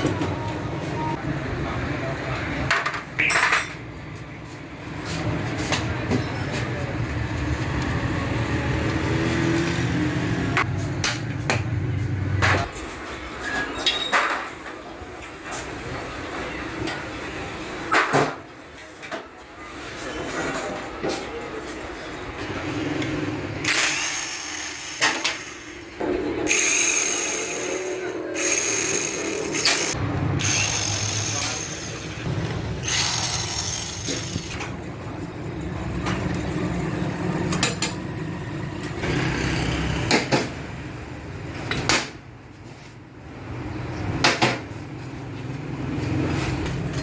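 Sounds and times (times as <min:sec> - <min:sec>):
metal tools clinking on metal parts: 0:26.5 - 0:34.6.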